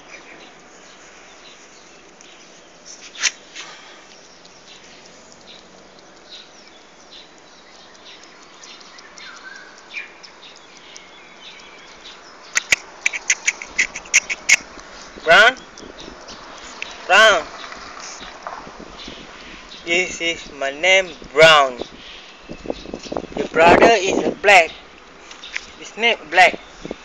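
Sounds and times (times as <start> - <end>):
faint bird chirps: 0.0 - 18.3
sharp clicks: 3.0 - 14.9.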